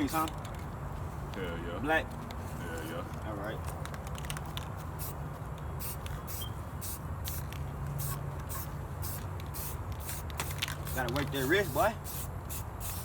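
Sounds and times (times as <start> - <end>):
spray can hissing bursts: 5.0 - 5.2, 5.8 - 13.0.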